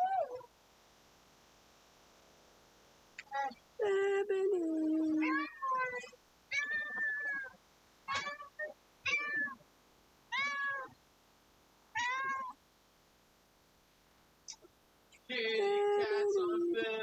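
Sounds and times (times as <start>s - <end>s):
cat meowing: 4.8s - 9.6s, 10.3s - 11.0s, 12.0s - 12.6s
cat chirp: 5.1s - 9.6s, 10.3s - 11.0s, 12.0s - 12.6s.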